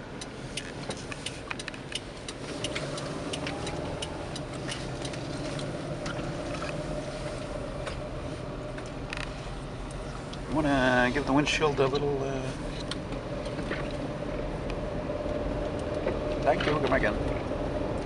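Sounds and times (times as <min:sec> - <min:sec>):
car engine and road hum: 0:00.0 - 0:18.0
light ticks: 0:00.2 - 0:06.8.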